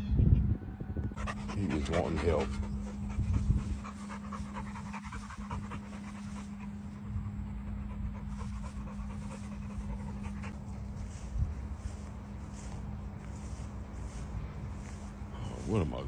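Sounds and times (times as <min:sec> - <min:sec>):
steady low hum: 0:00.0 - 0:16.0
dog panting: 0:01.1 - 0:12.0.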